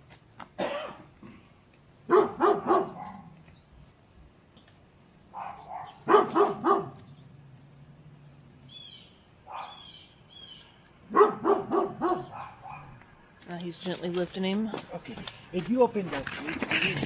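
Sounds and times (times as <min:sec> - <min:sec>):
dog barking: 0:02.1 - 0:03.3, 0:05.3 - 0:07.0, 0:09.4 - 0:09.8, 0:11.1 - 0:13.0.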